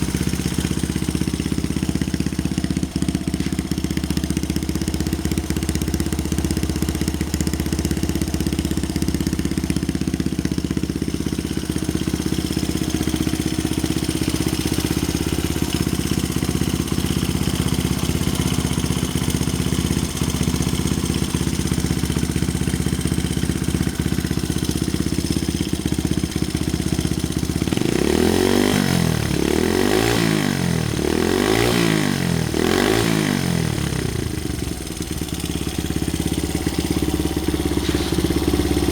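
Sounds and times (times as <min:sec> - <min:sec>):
small engine idling: 0:00.0 - 0:38.9
engine revving: 0:27.6 - 0:35.1, 0:35.8 - 0:38.9.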